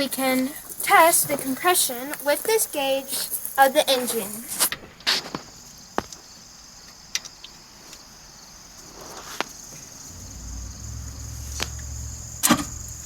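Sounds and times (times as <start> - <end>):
insect chirring: 0.0 - 13.0
low rumble: 10.0 - 13.0.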